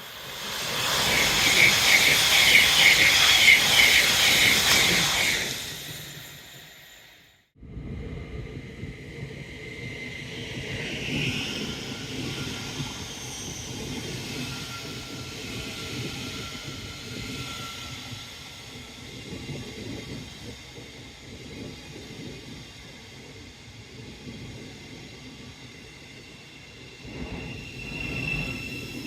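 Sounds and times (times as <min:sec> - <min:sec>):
train passing: 0:00.0 - 0:07.4, 0:23.3 - 0:29.0.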